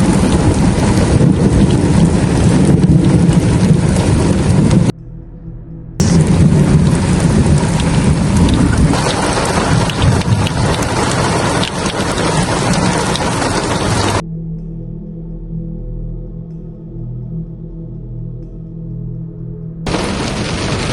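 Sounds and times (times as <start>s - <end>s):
heavy rain pouring: 0.0s - 4.9s, 6.0s - 14.2s, 19.9s - 20.9s
low thunder rumble: 0.0s - 14.2s, 19.9s - 20.9s.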